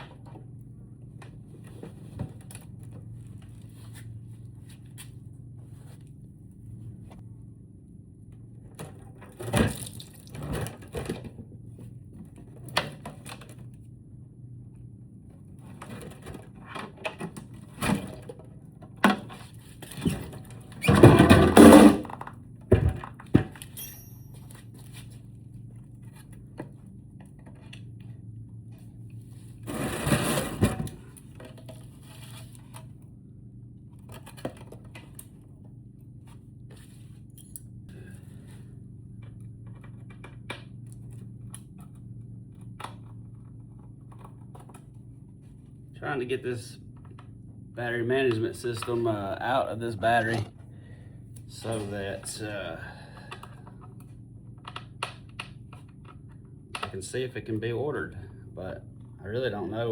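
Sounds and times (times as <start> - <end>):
steady low hum: 21.5 - 59.9.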